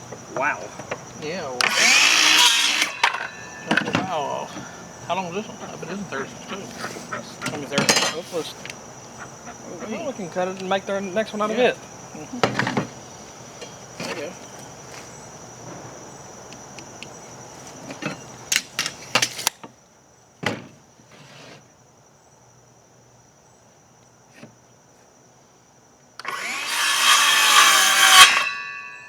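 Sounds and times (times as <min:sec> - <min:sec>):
knocks handling lumber: 0:00.0 - 0:08.8
power saw cutting wood: 0:01.6 - 0:04.5, 0:26.2 - 0:29.0.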